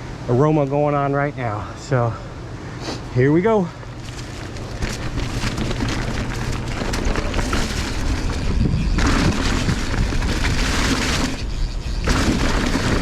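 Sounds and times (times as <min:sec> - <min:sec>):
knobby tyres rumbling on dirt: 0:00.0 - 0:13.0
bike rattling: 0:03.7 - 0:13.0
wind buffeting microphone: 0:04.4 - 0:13.0.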